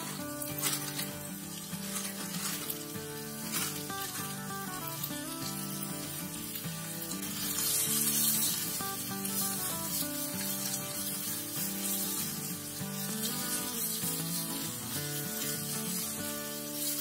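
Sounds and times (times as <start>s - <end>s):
stir-fry sizzling in a pan: 0.0s - 17.0s.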